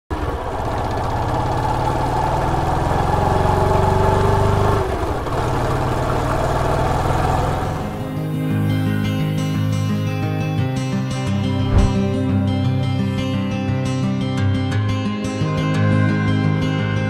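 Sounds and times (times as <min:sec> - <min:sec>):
motorcycle engine running: 0:00.1 - 0:08.2.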